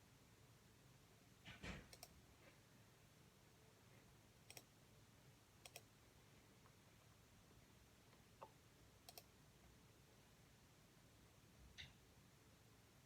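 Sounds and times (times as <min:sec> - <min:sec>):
faint sharp clicks: 0:04.5 - 0:04.7, 0:08.1 - 0:09.3.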